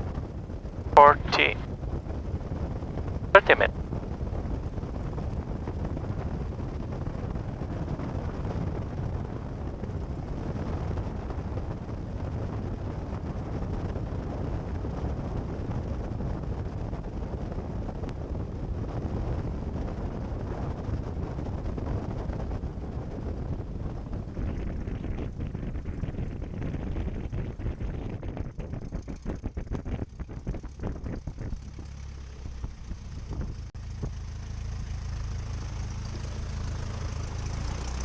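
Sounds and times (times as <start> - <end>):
aircraft piston engine droning: 0.0 - 13.6, 30.6 - 38.0.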